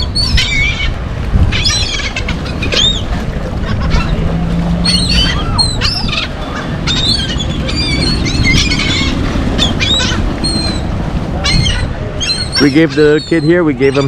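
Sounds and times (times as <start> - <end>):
steady low rumble: 0.0 - 12.6
gulls calling: 0.0 - 14.0.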